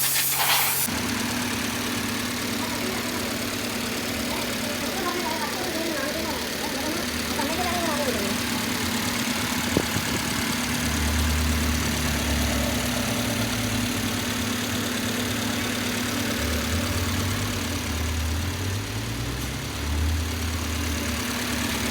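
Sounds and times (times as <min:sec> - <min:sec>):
car engine idling: 0:00.8 - 0:21.9.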